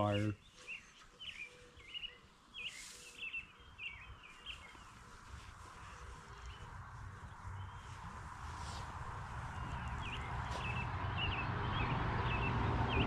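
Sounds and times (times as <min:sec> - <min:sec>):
songbirds chirping: 0:00.0 - 0:13.0
wind rumble on microphone: 0:04.0 - 0:13.0.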